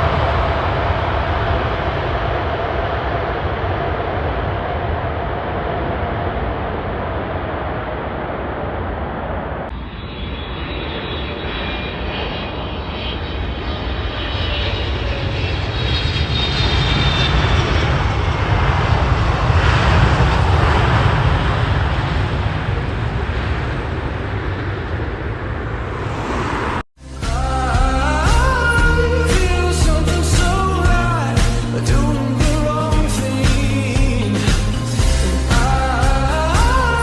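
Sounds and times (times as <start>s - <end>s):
jet engines rumbling with whine: 0.0s - 26.9s, 28.1s - 37.0s.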